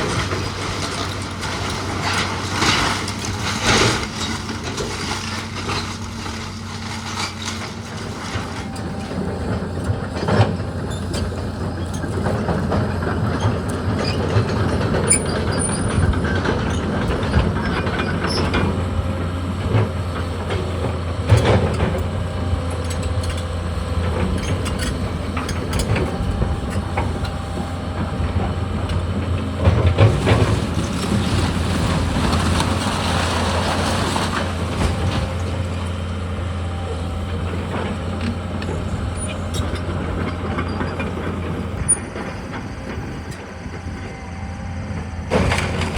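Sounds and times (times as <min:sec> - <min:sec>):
heavy machine engine running: 0:00.0 - 0:45.9.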